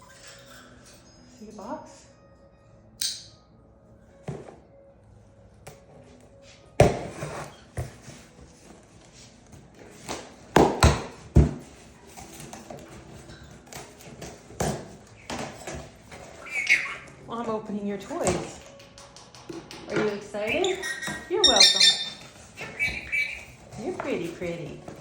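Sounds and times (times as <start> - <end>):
cardboard scraping and rustling: 6.8 - 8.3.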